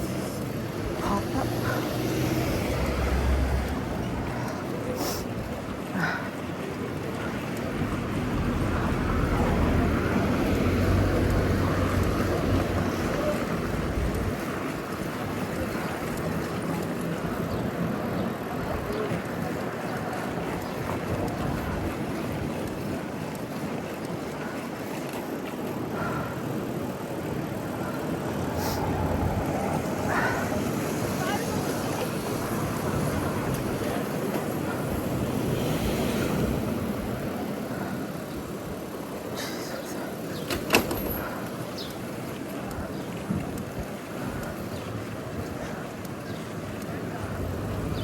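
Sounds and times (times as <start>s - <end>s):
motor vehicle passing: 0.0s - 5.0s, 7.8s - 22.9s, 25.1s - 38.4s
street traffic: 0.0s - 48.0s
wind on microphone: 7.7s - 23.2s, 27.7s - 38.8s.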